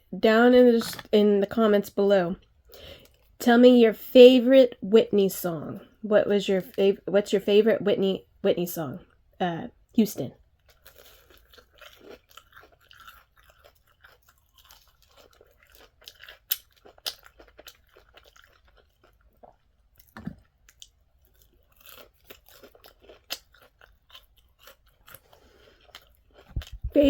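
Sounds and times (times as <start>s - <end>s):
person chewing crunchy food: 0.7s - 1.2s, 10.5s - 27.0s.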